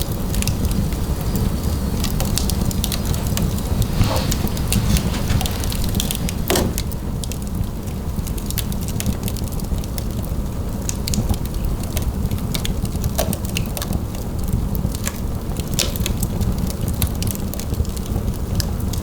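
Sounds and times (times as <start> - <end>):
wood fire crackling: 0.0 - 9.6.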